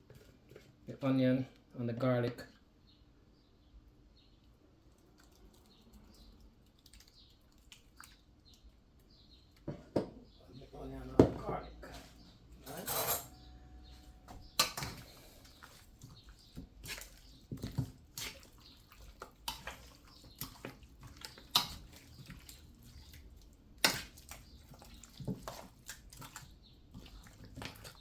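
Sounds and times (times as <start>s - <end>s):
hands squelching raw chicken: 4.8s - 9.6s, 14.4s - 28.0s.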